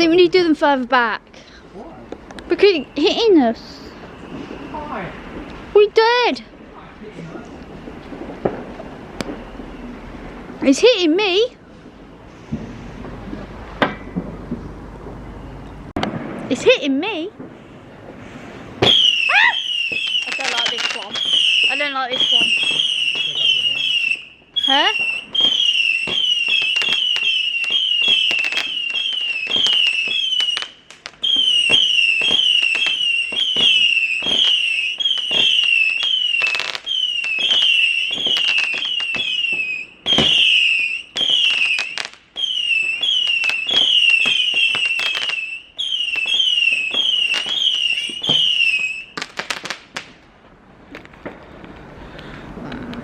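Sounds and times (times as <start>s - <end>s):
firework crackling pops: 2.1s - 9.8s, 12.4s - 15.2s, 15.9s - 52.4s
firework shrieking whistles: 2.6s - 5.8s, 8.1s - 10.3s, 18.7s - 49.8s.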